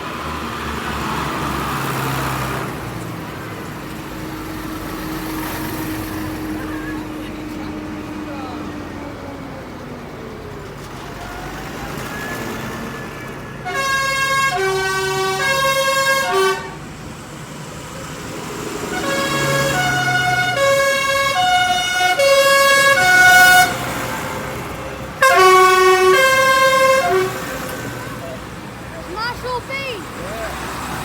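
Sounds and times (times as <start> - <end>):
engine running: 0.0 - 31.0
vehicle musical horn: 12.1 - 16.9, 18.9 - 24.5, 25.2 - 28.2.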